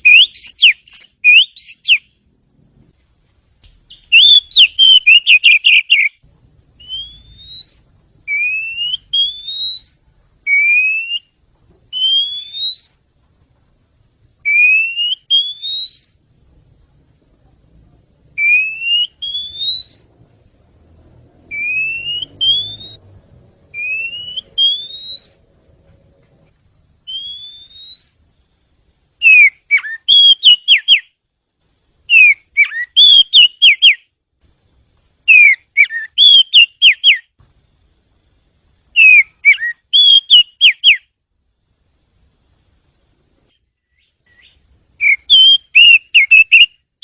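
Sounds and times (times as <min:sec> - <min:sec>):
magpie-robin singing: 0:00.0 - 0:02.1, 0:03.9 - 0:06.2, 0:06.8 - 0:11.3, 0:11.9 - 0:13.0, 0:14.5 - 0:16.2, 0:18.4 - 0:20.1, 0:21.5 - 0:23.0, 0:23.8 - 0:25.4, 0:27.1 - 0:28.2, 0:29.2 - 0:31.1, 0:32.1 - 0:34.0, 0:35.3 - 0:37.2, 0:39.0 - 0:41.0, 0:43.9 - 0:46.7.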